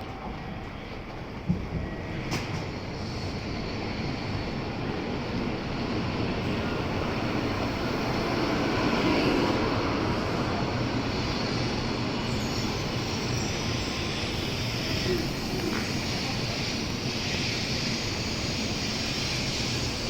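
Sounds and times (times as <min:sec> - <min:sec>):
train pulling in: 0:00.0 - 0:20.0.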